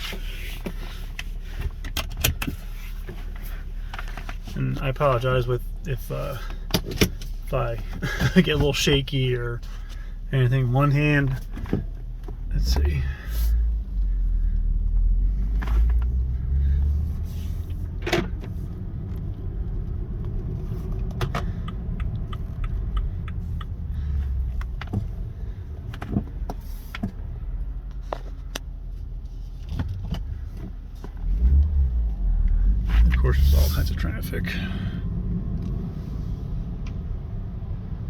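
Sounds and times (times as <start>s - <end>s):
engine and road rumble: 0.0s - 38.0s
sharp clicks and knocks: 21.0s - 23.8s.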